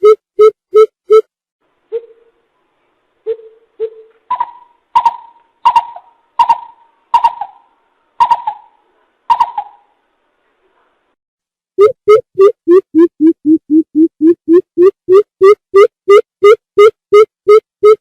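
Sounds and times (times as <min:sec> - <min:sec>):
bird deep hooting calls: 0:03.3 - 0:09.9.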